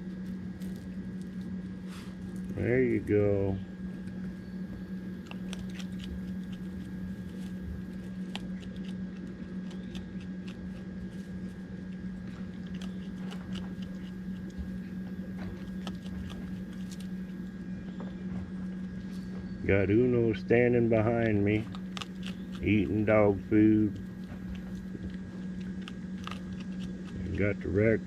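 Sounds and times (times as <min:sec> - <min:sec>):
animals crunching dry food: 0:00.0 - 0:28.0
steady low hum: 0:00.0 - 0:28.0.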